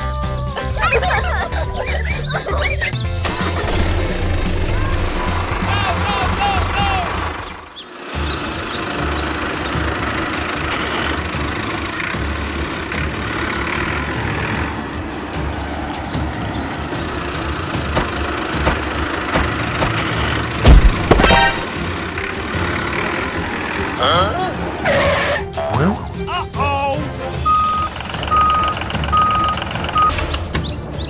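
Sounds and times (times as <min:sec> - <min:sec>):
model tractor engine running: 0:03.2 - 0:20.6.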